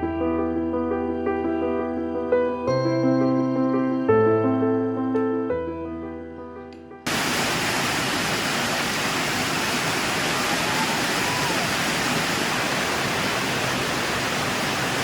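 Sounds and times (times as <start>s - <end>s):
steady downpour of rain: 7.1s - 15.0s.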